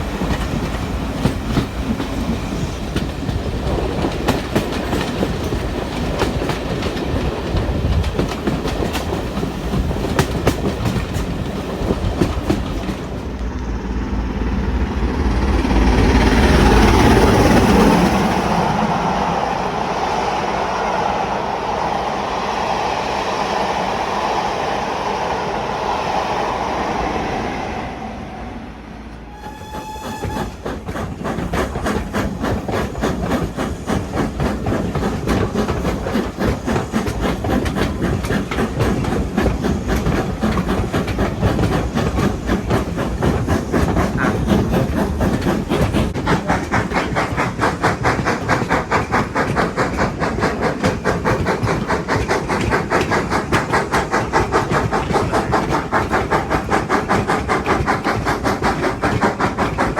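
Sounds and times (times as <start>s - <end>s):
train clattering: 0.0s - 21.9s, 22.8s - 59.9s
train rushing rumble: 0.0s - 59.9s
train whistle: 29.1s - 30.8s.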